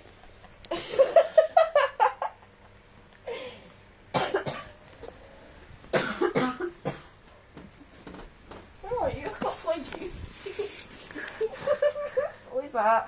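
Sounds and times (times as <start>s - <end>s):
person coughing: 4.1s - 4.8s, 5.9s - 7.1s.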